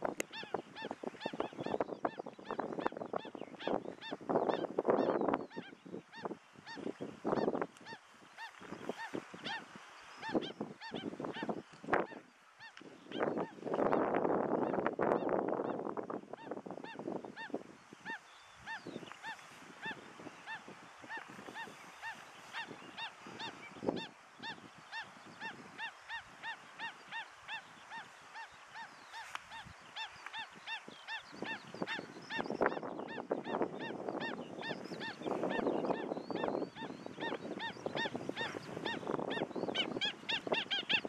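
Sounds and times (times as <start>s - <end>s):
birds calling: 16.4s - 41.0s.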